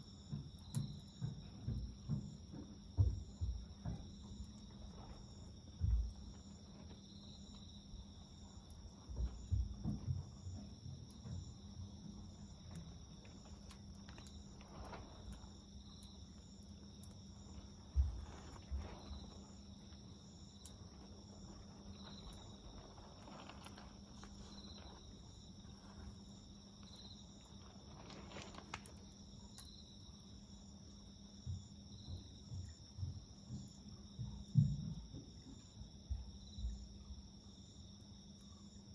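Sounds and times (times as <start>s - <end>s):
insects chirping: 0.0s - 38.9s
campfire crackling: 3.2s - 30.7s.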